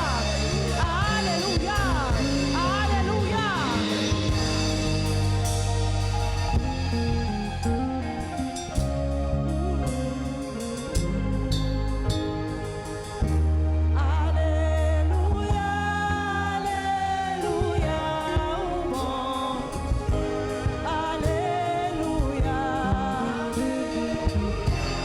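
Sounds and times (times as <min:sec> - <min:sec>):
voices singing together: 0:00.0 - 0:07.7, 0:14.2 - 0:25.0
drums: 0:00.0 - 0:13.8, 0:15.0 - 0:25.0
low bass note: 0:00.0 - 0:16.8, 0:22.0 - 0:25.0
keyboard: 0:00.0 - 0:25.0.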